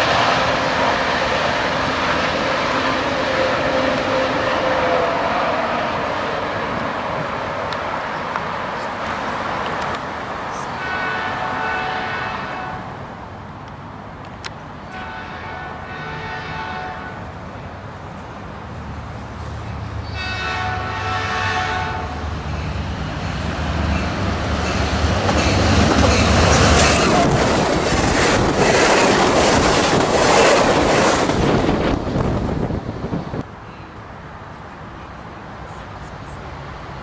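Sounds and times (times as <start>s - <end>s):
locomotive horn blasts: 2.6s - 6.1s, 10.8s - 13.0s, 14.9s - 17.3s, 20.0s - 22.2s
train wheels clattering on rails: 22.6s - 32.5s.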